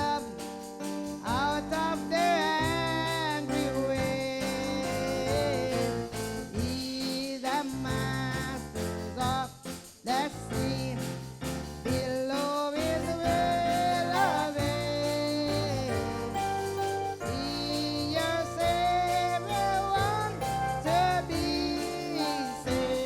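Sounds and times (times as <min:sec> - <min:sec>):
person singing long sliding notes: 0:13.0 - 0:23.0
instrumental chords: 0:13.2 - 0:23.0.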